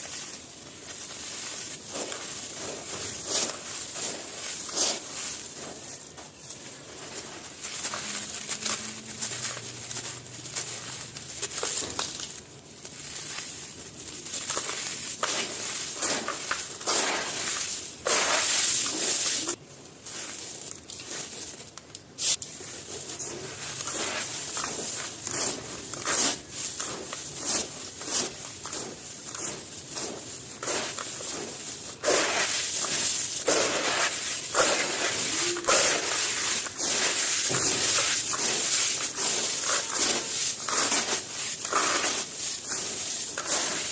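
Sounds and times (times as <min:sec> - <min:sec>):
hands crushing brittle pieces: 0:00.0 - 0:19.5, 0:20.1 - 0:43.9.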